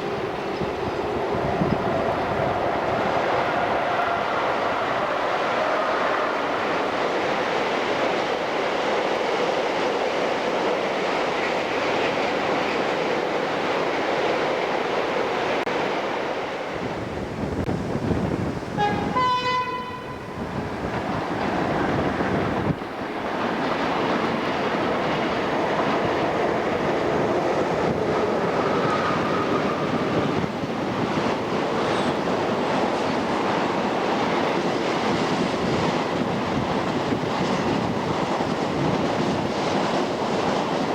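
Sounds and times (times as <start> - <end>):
train wheels rushing on rail: 0.0 - 40.9
locomotive horn blast: 18.7 - 20.6.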